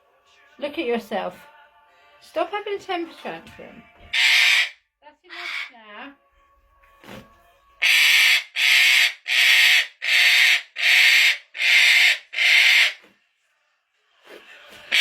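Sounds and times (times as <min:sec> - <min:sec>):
parrot screeching: 0:04.1 - 0:05.8, 0:07.8 - 0:13.0.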